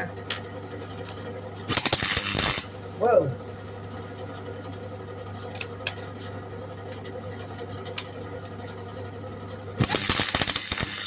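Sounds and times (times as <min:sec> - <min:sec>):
welder humming: 0:01.7 - 0:03.5, 0:09.8 - 0:11.0.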